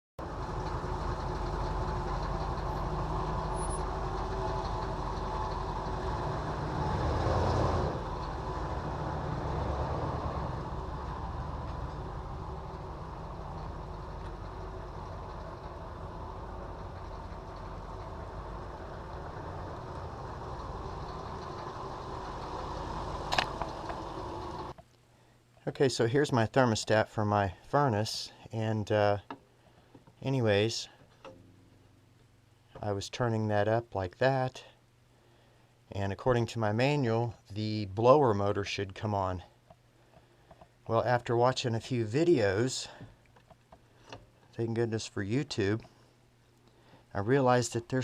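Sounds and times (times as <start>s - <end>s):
machine humming and rumbling: 0.2s - 24.8s.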